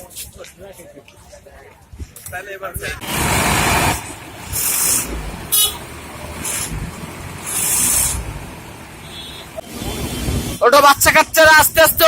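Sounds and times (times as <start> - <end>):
vehicle engines running: 2.8 - 11.9
car horn toot: 5.5 - 5.9, 9.0 - 10.4
bursts of hiss: 7.4 - 8.4.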